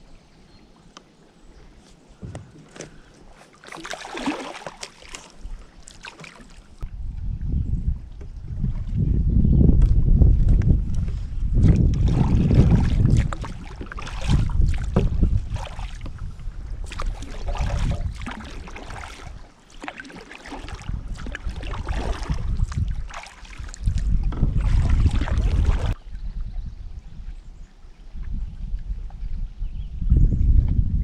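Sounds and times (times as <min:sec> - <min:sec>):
kayak paddle splashing: 0:01.5 - 0:06.9, 0:10.5 - 0:26.4
wind buffeting microphone: 0:06.8 - 0:19.5, 0:20.6 - 0:31.0.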